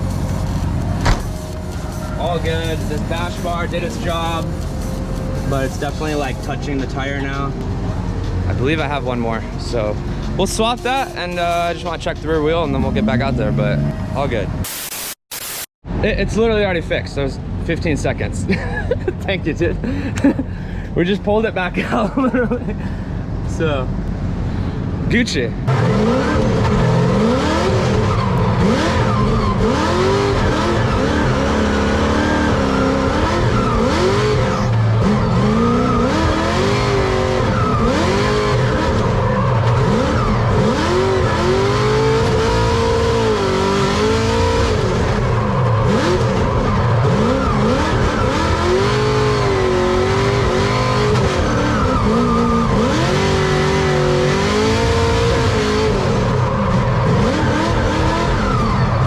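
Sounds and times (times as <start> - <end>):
tyres squealing and skidding: 0.0 - 14.4, 26.1 - 59.0
car engine revving: 0.0 - 14.7, 25.7 - 59.0.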